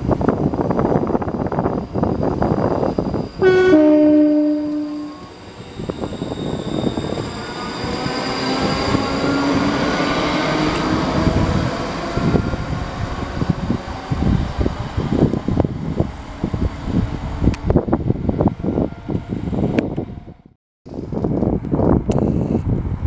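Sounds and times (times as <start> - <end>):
train rumbling past: 0.0 - 22.1
gliding train whine: 0.0 - 22.4
two-tone train horn: 3.4 - 5.4.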